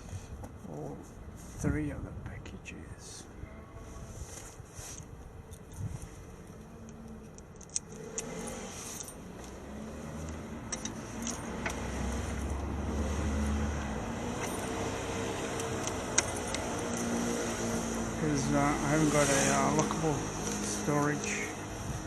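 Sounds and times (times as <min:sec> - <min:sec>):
vehicle passing with low rumble: 0:05.4 - 0:22.0.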